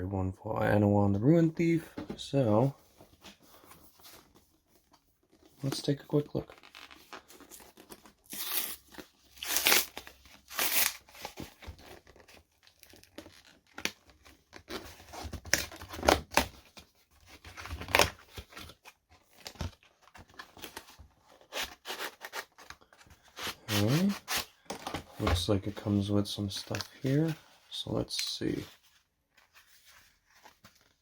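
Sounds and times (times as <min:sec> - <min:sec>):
plastic shrink wrap tearing: 0:06.6 - 0:11.1.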